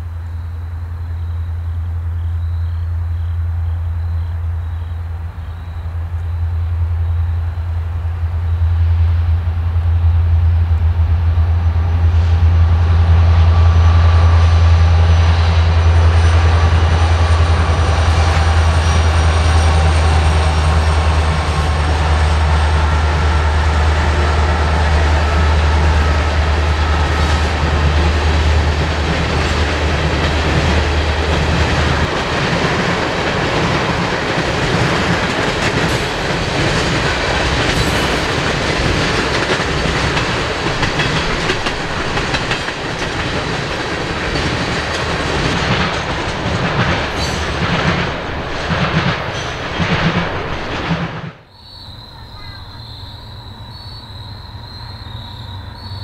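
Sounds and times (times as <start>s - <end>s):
diesel locomotive engine rumble: 0.0s - 51.5s
train wheels clacking on rail joints: 15.8s - 51.4s.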